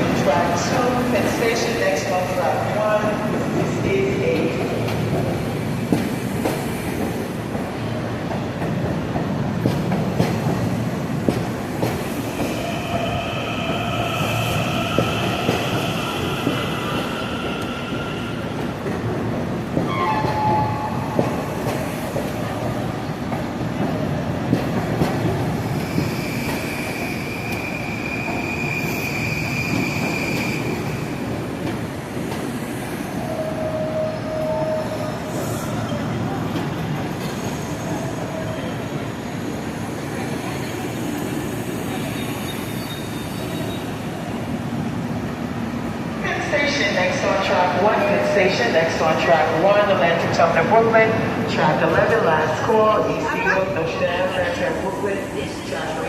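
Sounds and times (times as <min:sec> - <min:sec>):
train rumbling on rails: 0:00.0 - 0:56.0.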